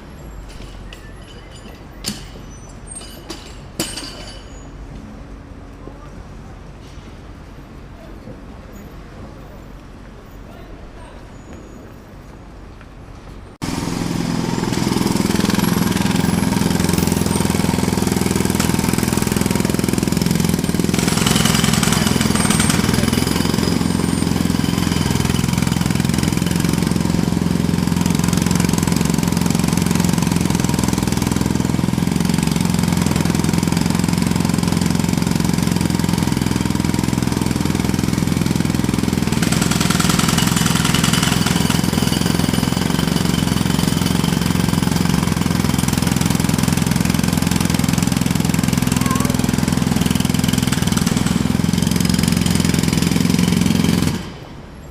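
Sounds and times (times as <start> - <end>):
jackhammer hammering: 1.6 - 4.5, 13.6 - 54.6.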